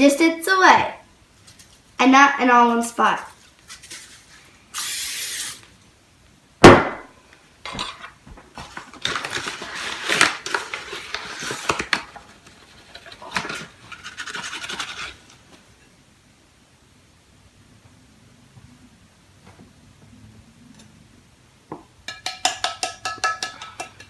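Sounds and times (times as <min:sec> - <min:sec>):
cooking spray hiss: 0:04.7 - 0:05.7
sharp knock: 0:06.6 - 0:07.1.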